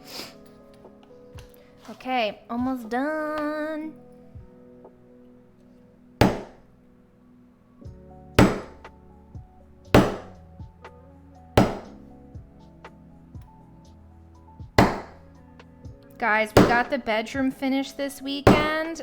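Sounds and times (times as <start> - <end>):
quiet background music: 0.0 - 19.0
mallet striking leather tool: 6.2 - 6.6, 8.4 - 8.8, 10.0 - 10.4, 11.6 - 12.0, 14.8 - 15.2, 16.6 - 16.9, 18.5 - 18.8.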